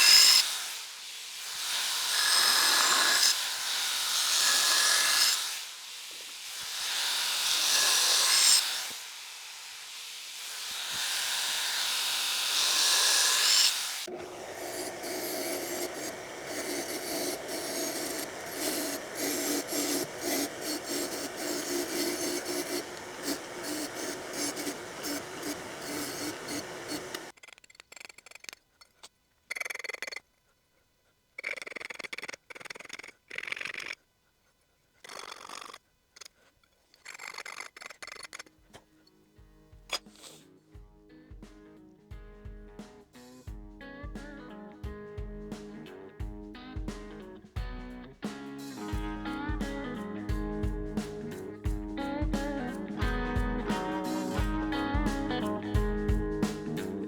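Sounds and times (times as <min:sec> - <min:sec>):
belt grinder grinding steel: 0:00.0 - 0:00.8, 0:01.4 - 0:09.2, 0:10.4 - 0:30.2, 0:36.9 - 0:38.5, 0:48.6 - 0:57.0.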